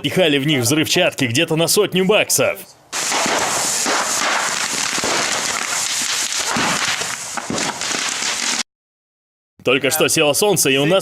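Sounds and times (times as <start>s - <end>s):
firecrackers popping rapidly: 2.9s - 8.7s.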